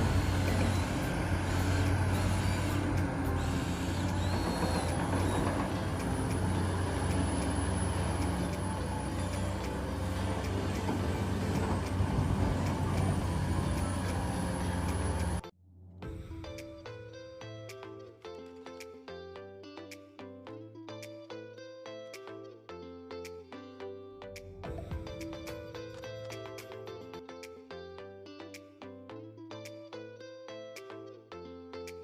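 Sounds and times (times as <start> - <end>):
diesel engine running: 0.0 - 16.2.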